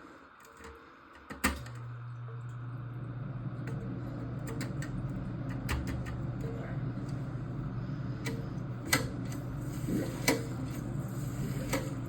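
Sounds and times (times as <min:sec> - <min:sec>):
toilet water rushing: 0:09.0 - 0:12.0.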